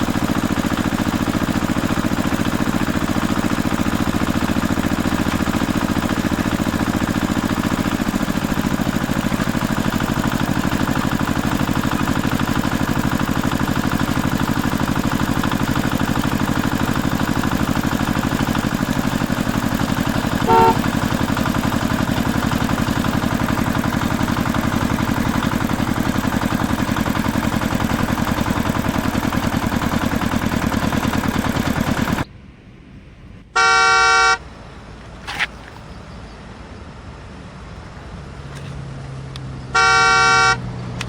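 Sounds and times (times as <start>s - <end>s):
vehicle engine running: 0.0s - 41.0s
horn honking: 13.5s - 23.2s, 33.5s - 34.6s, 39.7s - 41.0s.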